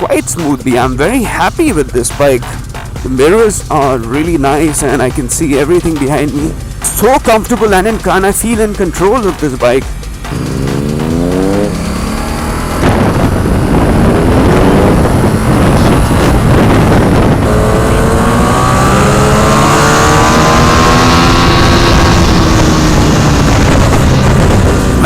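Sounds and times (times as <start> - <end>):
motorcycle engine accelerating: 0.0 - 25.0
wind rushing over microphone: 10.3 - 25.0.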